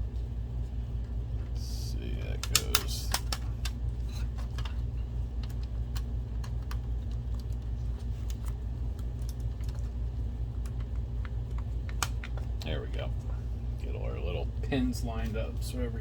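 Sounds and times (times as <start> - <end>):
steady low hum: 0.0 - 16.0
plastic parts clicking: 2.4 - 3.8.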